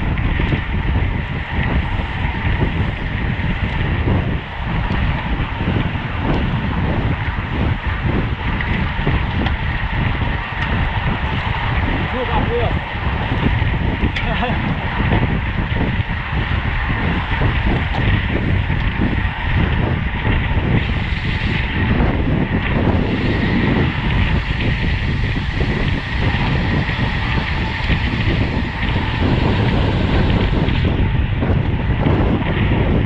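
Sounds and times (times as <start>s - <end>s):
wind buffeting microphone: 0.0s - 33.0s
tyres hissing on road: 20.7s - 22.0s, 22.8s - 31.0s.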